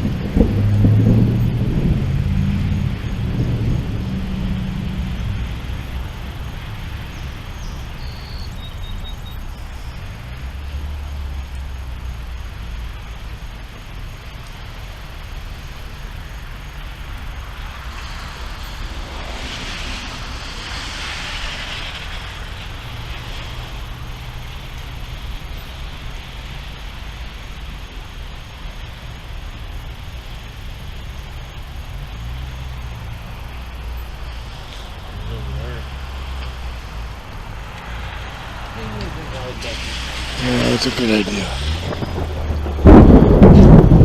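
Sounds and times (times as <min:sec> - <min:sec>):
low thunder rumbling: 0:00.0 - 0:08.5, 0:31.6 - 0:44.0
rain rushing hiss: 0:00.0 - 0:44.0.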